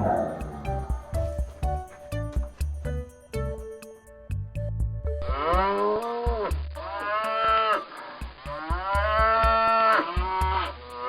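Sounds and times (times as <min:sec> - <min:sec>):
cow mooing: 0:00.0 - 0:01.2.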